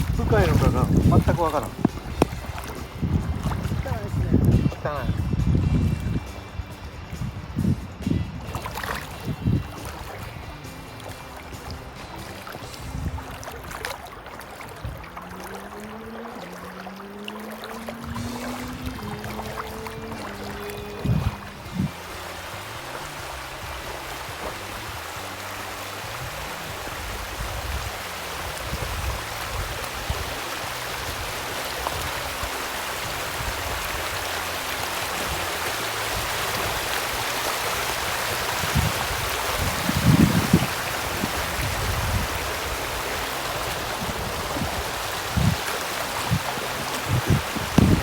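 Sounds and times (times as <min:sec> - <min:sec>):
low thumps: 0:00.0 - 0:13.8, 0:38.6 - 0:48.0
flooded river rushing: 0:00.0 - 0:48.0.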